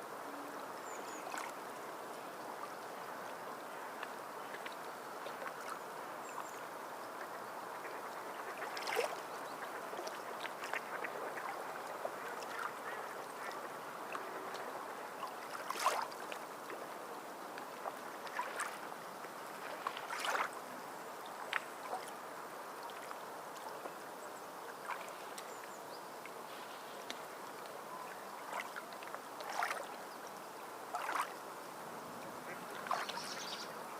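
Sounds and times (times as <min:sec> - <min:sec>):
water lapping and gurgling: 0:00.8 - 0:26.7, 0:28.0 - 0:33.9
short sharp splashes: 0:19.6 - 0:20.5, 0:29.4 - 0:29.8, 0:30.9 - 0:31.3.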